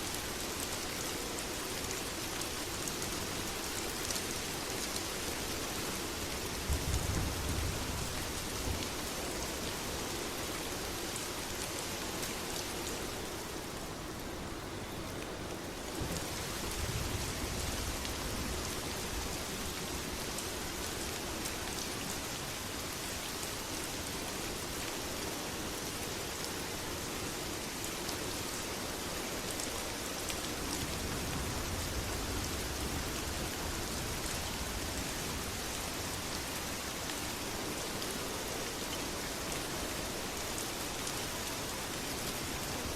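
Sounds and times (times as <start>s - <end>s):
heavy rain: 0.0s - 42.9s.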